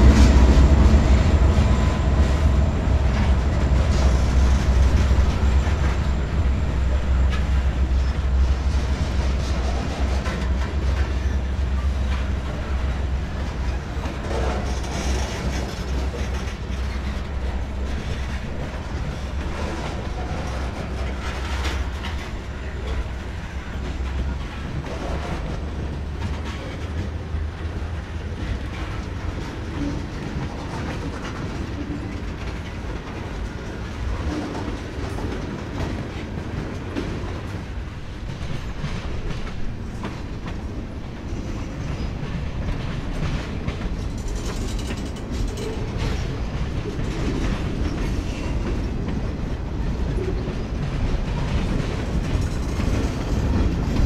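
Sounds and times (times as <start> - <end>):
train rumbling: 0.0 - 54.0
train wheels clicking over rail joints: 0.0 - 54.0.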